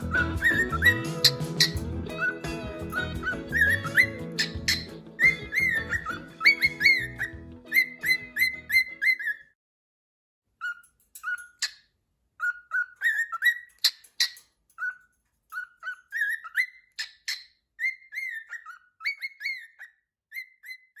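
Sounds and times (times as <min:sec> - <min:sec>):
cockatiel whistling: 0:00.0 - 0:09.5, 0:12.4 - 0:13.7, 0:15.6 - 0:21.0
sharp bird chirps: 0:00.0 - 0:09.6, 0:12.4 - 0:21.0.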